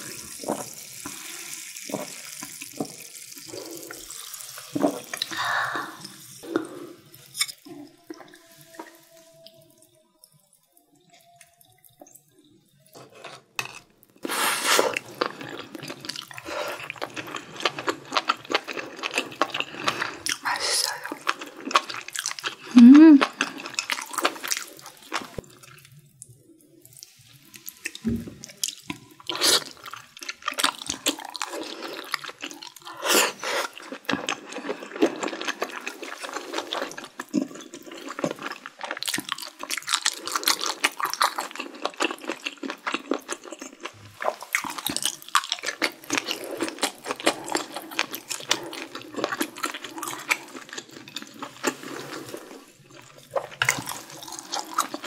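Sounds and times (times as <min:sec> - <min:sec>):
wet chewing and mouth smacking: 0:14.9 - 0:26.3, 0:33.7 - 0:55.0.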